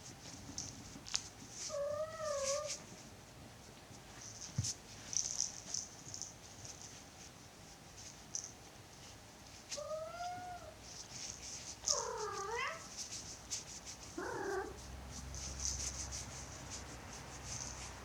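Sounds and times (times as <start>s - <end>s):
cat meowing: 9.8s - 10.8s, 14.2s - 14.8s
cat purring: 11.8s - 12.9s, 14.1s - 15.9s.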